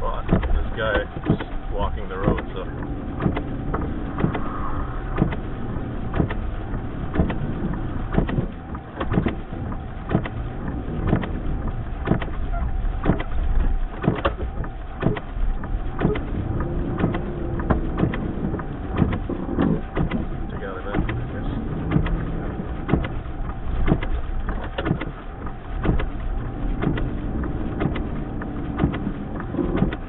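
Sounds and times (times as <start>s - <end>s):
blizzard wind: 0.0s - 30.0s
vehicle engine rumble: 0.0s - 30.0s
sharp clicks and taps: 0.2s - 1.6s, 2.2s - 4.5s, 14.0s - 30.0s.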